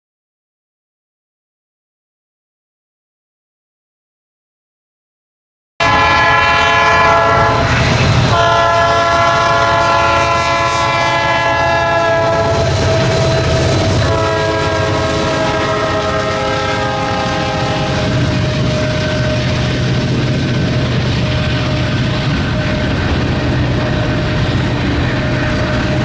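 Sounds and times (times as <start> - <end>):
locomotive air horn blasts: 5.8 - 20.0
passing train rumble: 5.8 - 26.0.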